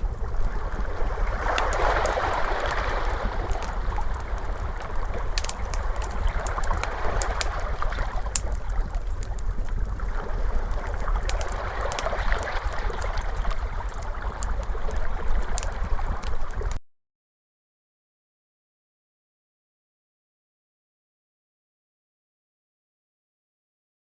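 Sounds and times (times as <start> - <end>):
fire crackling: 0.0 - 16.8
ocean waves washing: 0.2 - 16.3.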